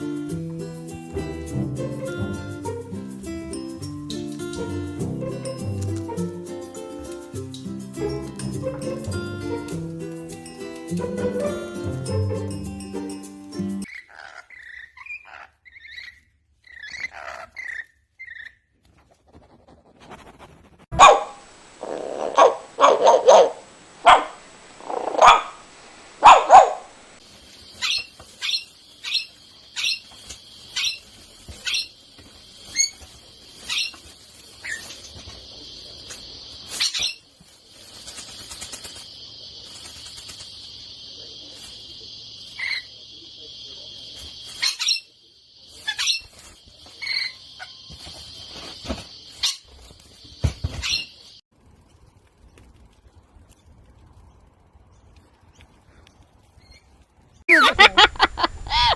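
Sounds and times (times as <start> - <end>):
bird chirps: 13.8 - 18.7, 27.4 - 37.3, 38.2 - 51.4
loud barks: 21.0 - 21.4, 22.2 - 25.6, 26.2 - 27.0.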